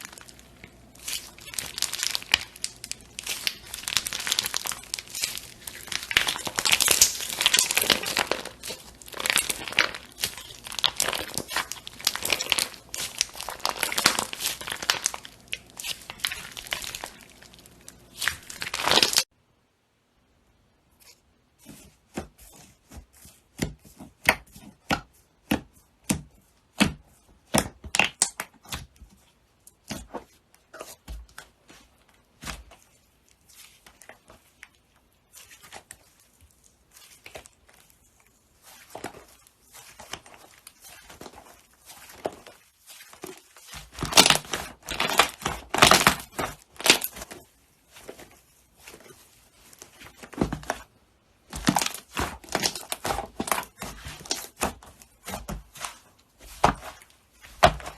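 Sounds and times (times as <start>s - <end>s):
slime crackling and popping: 0.0s - 19.3s, 32.3s - 57.9s.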